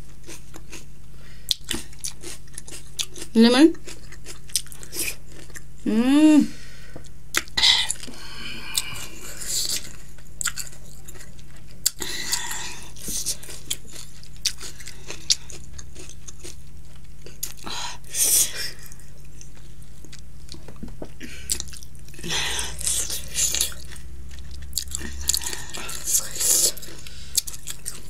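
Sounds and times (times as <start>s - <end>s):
biting and chewing lemon: 1.5s - 5.7s, 7.3s - 17.6s.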